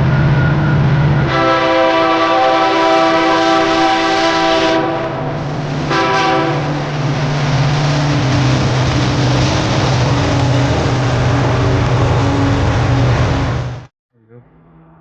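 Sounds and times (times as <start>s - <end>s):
diesel locomotive engine drone: 0.0s - 15.0s
locomotive air horn blasts: 1.2s - 6.8s.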